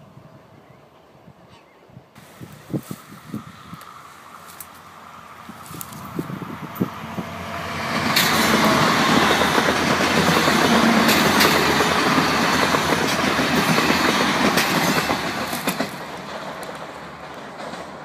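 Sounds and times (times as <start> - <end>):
train passing at speed: 2.2 - 18.0
wheels clicking on rails: 8.1 - 18.0.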